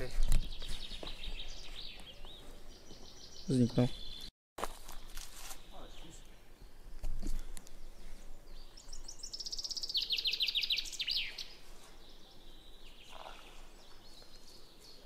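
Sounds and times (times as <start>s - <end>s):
songbird singing high notes: 8.8s - 13.7s.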